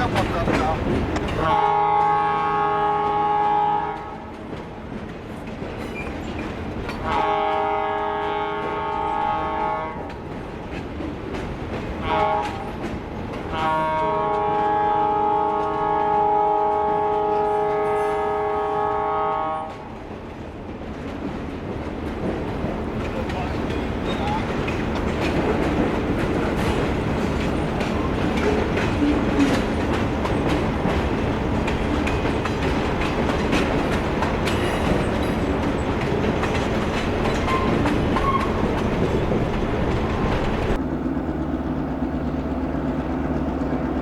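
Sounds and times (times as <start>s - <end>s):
wheel clatter: 0.0s - 1.5s, 22.6s - 40.8s
train rumble: 0.0s - 44.0s
locomotive air horn blasts: 1.4s - 4.2s, 7.0s - 10.1s, 12.0s - 12.8s, 13.5s - 19.8s.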